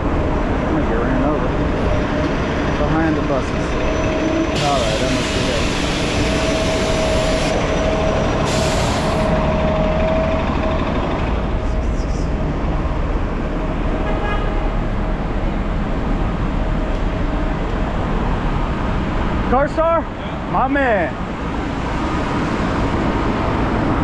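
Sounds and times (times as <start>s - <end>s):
vehicle engine running: 0.0s - 13.8s
road noise: 0.0s - 24.0s.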